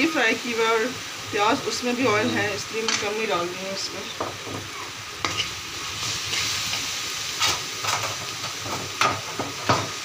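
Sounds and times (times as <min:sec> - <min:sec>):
onions sizzling in a wok: 0:00.0 - 0:10.0
metal spoon scraping a pan: 0:05.2 - 0:05.6, 0:06.2 - 0:08.8.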